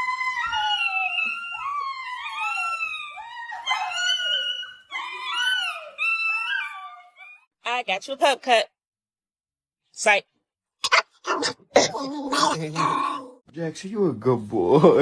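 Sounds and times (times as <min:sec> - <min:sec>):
dog whining and yowling: 0:00.0 - 0:07.5.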